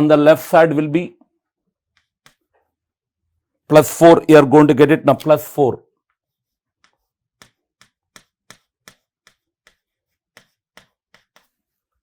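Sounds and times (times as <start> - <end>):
pen tapping on writing surface: 6.8 - 11.6.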